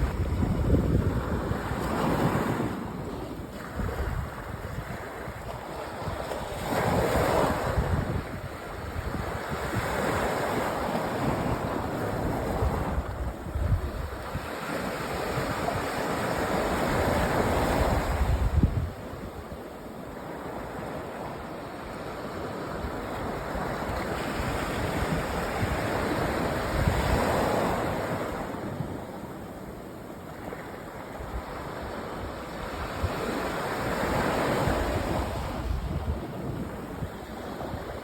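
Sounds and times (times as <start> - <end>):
wind rumbling on microphone: 0.0 - 19.8, 20.4 - 38.0
sea waves breaking on beach: 0.0 - 38.0.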